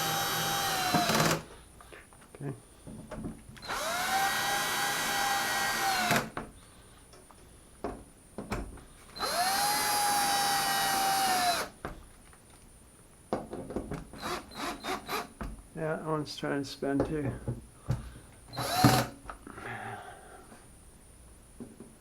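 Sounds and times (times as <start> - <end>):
drill-driver motor whine: 0.0 - 1.4, 3.6 - 6.3, 9.2 - 11.7, 14.2 - 15.3, 18.5 - 19.1.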